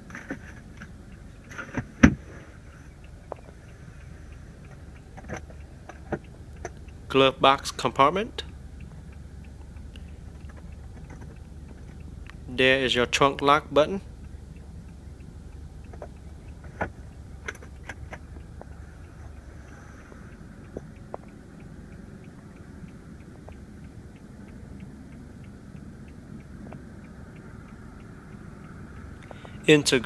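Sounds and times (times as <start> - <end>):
car cabin low hum: 0.0 - 28.2, 28.8 - 30.0
faint even ticking: 0.0 - 30.0
sharp clicks: 0.1 - 17.9.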